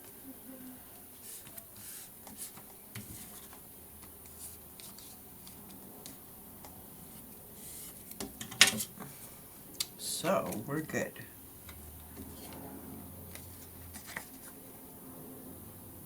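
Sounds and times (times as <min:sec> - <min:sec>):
paper rustling: 0:01.2 - 0:05.8, 0:13.3 - 0:14.7.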